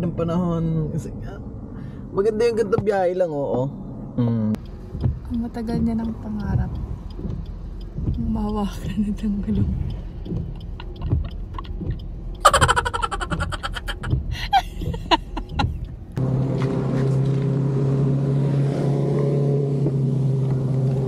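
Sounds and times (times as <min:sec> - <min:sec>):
car engine drone: 0:00.0 - 0:21.0
road noise inside moving car: 0:00.0 - 0:21.0
irregular clicks and knocks: 0:04.6 - 0:16.2.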